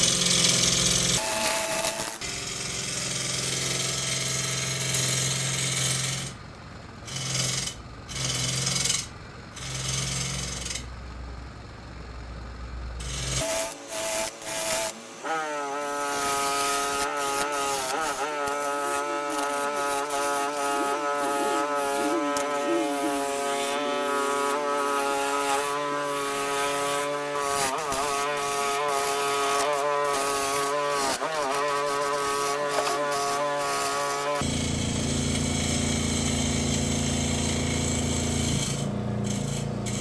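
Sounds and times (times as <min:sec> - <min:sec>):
power tool motor whining: 0:00.0 - 0:06.3, 0:13.0 - 0:40.0
scratchy wood carving noise: 0:07.1 - 0:10.9, 0:13.0 - 0:40.0.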